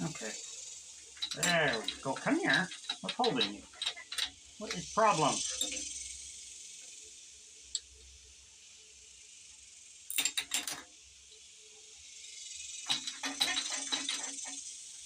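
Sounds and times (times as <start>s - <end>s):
insects chirring: 0.0s - 15.0s
metal parts clinking and rattling: 1.1s - 6.0s, 10.1s - 10.9s, 12.8s - 14.7s.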